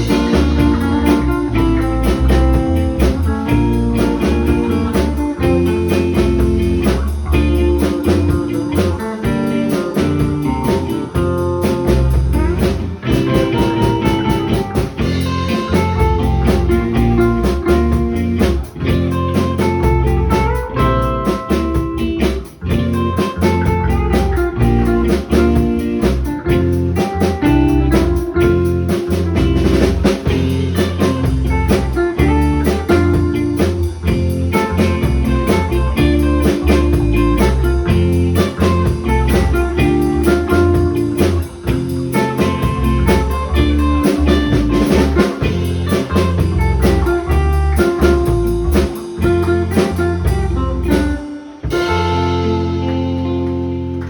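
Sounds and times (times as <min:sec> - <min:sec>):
bass line: 0:00.0 - 0:54.0
drum kit steady beat: 0:00.0 - 0:54.0
guitar melody: 0:00.0 - 0:54.0.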